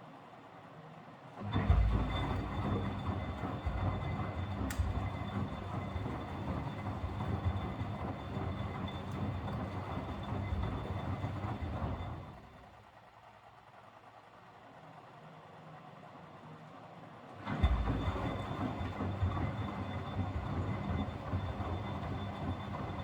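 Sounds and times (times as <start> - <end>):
washing machine drum rumble: 1.4 - 12.7, 17.4 - 23.0.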